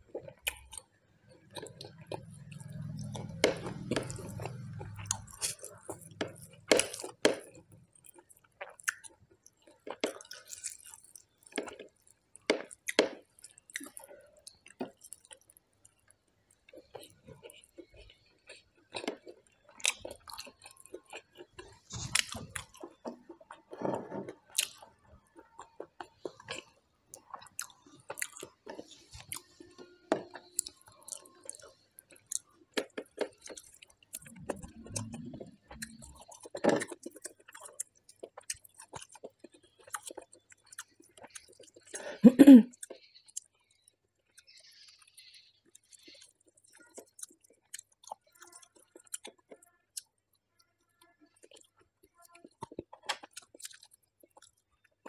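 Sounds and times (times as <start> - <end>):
wet chewing and lip smacking: 0.1 - 42.1, 42.7 - 55.0
throaty mouth sound: 34.2 - 36.2.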